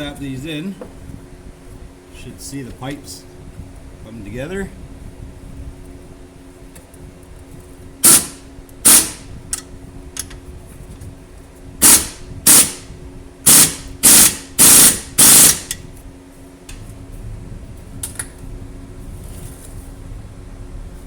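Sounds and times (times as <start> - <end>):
impact wrench bursts: 8.0 - 9.3, 11.8 - 15.8.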